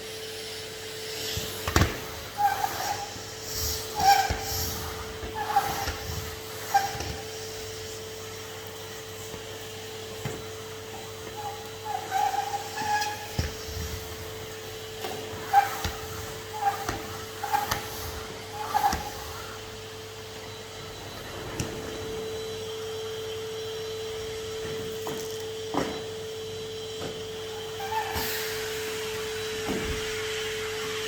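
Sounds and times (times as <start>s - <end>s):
vacuum cleaner whining: 0.0s - 31.0s
high-pitched squeaks: 15.0s - 19.6s.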